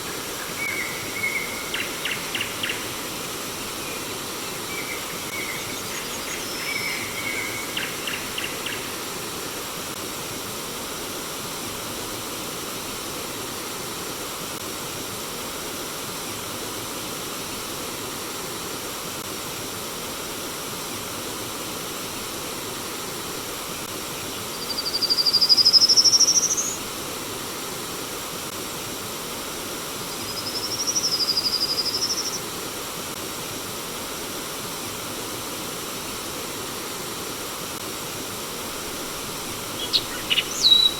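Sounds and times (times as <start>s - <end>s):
flowing stream water: 0.0s - 24.7s, 31.5s - 40.9s
bird calls: 39.3s - 40.9s
bird whistle rising in pitch: 39.8s - 40.9s.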